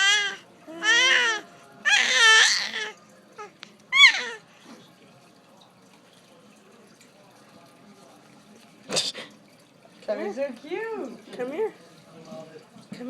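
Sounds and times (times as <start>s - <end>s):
baby squealing: 0.0s - 4.4s.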